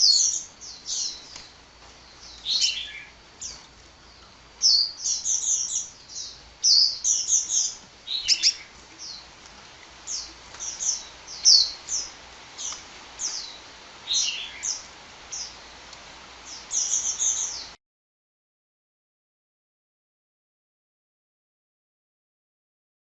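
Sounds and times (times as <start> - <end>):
bird singing high chirps: 0.0 - 1.4, 2.1 - 3.6, 4.6 - 9.3, 10.1 - 15.6, 16.4 - 17.8.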